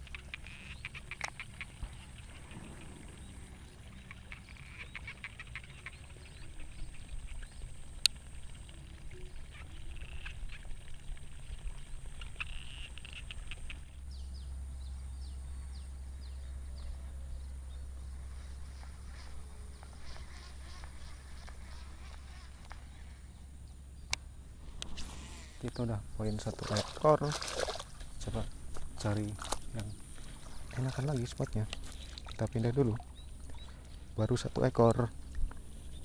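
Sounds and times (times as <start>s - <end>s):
rapid clicking calls: 0.0s - 14.0s
low wind rumble: 0.8s - 36.0s.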